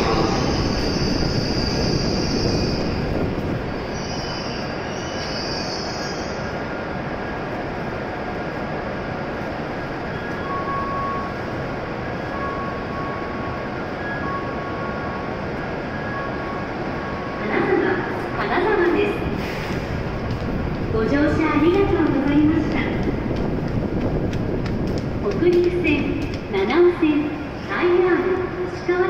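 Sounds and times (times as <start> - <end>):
train rumble: 0.0 - 29.0
high brake squeal: 3.9 - 6.4.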